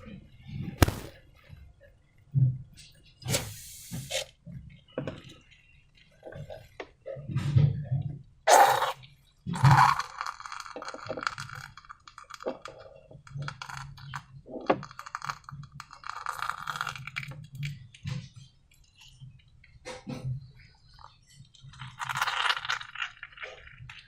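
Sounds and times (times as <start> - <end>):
sticky slime crackles: 0.8 - 1.1.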